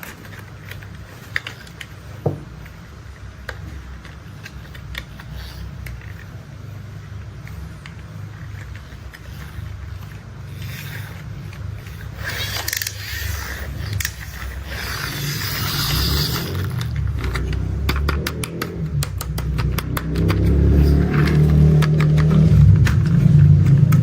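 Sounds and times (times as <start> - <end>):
sharp clicks and clatter: 7.1 - 24.0
scattered clicks: 16.4 - 24.0.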